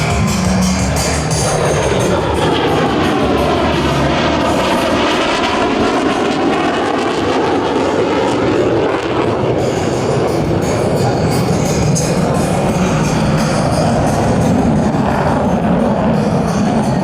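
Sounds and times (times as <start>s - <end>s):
jet fighter flying past: 0.0s - 17.0s.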